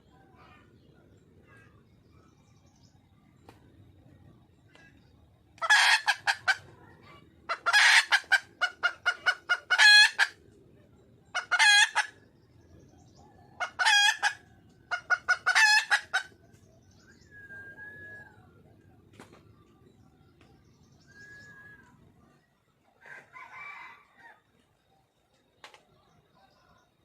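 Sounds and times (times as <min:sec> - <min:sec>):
hen cackling: 0:05.6 - 0:10.4, 0:11.3 - 0:12.2, 0:13.5 - 0:16.4.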